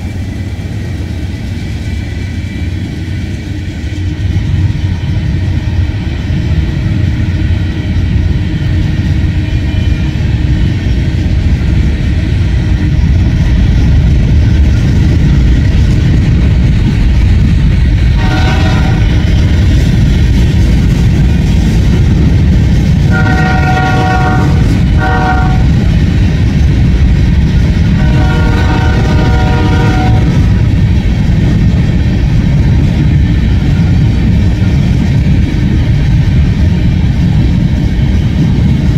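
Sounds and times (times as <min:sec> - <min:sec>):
freight train rumbling past: 0:00.0 - 0:38.9
locomotive horn blasts: 0:18.2 - 0:19.2, 0:23.1 - 0:25.8, 0:28.0 - 0:30.5.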